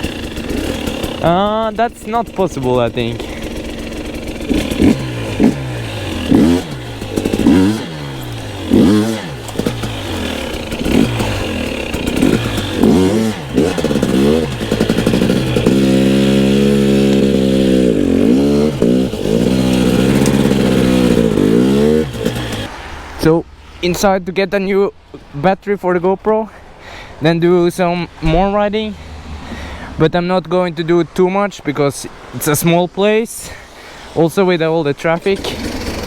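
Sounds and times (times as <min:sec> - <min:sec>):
two-stroke dirt bike engine revving: 0:00.0 - 0:22.8, 0:35.0 - 0:36.0.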